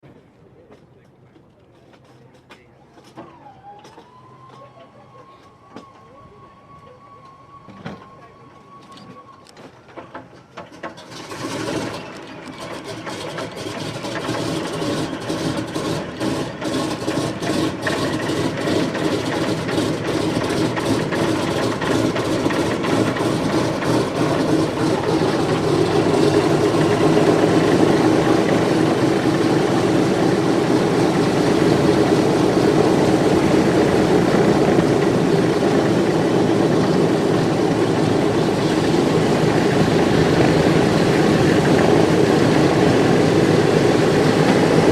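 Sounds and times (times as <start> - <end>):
piston engines starting up: 3.0 - 44.9.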